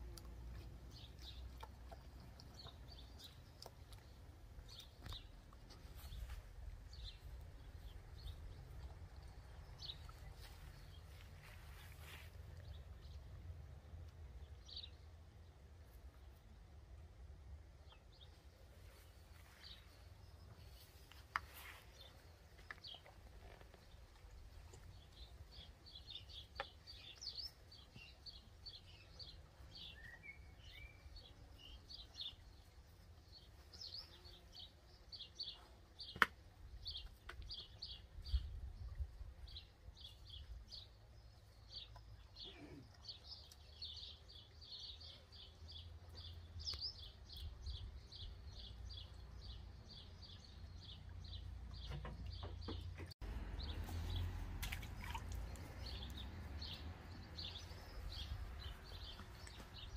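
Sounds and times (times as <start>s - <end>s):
small birds chirping: 0.0s - 16.5s, 17.8s - 59.9s.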